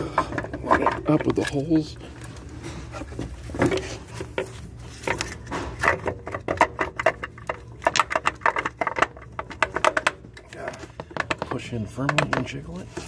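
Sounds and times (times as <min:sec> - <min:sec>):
low steady hum: 0:00.0 - 0:13.0
plastic part clicks and knocks: 0:11.0 - 0:12.6.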